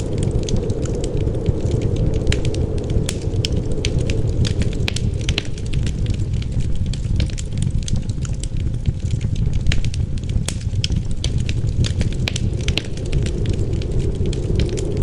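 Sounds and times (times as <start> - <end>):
low rumble of wind: 0.0 - 15.0
wood fire crackling: 0.0 - 15.0.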